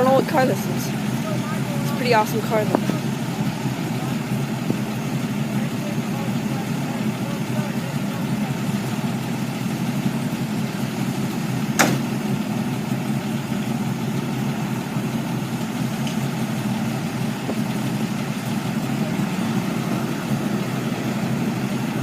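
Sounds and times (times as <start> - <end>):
car engine idling: 0.0 - 22.0
sharp click: 11.8 - 12.1.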